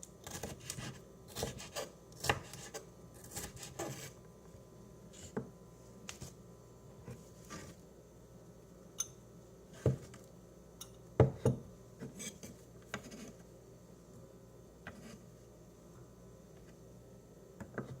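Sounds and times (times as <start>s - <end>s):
knife scraping cutting board: 0.3s - 4.2s, 7.0s - 7.8s, 12.0s - 13.4s, 14.9s - 15.2s.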